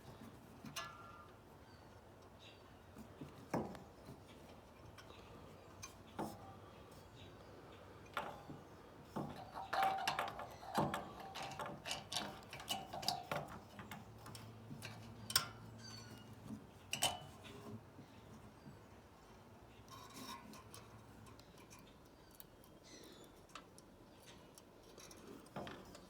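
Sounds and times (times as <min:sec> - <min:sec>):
small metallic clinks and clicks: 0:09.2 - 0:17.5.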